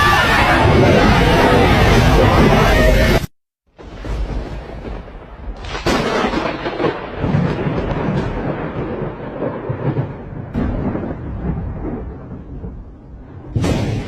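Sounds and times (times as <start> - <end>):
thunder crack and rumble: 3.8 - 14.0.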